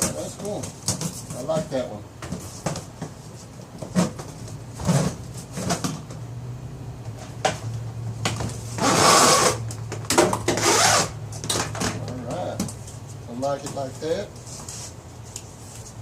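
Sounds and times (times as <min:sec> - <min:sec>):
steady low hum: 0:00.0 - 0:16.0
scraping and rustling: 0:12.7 - 0:16.0.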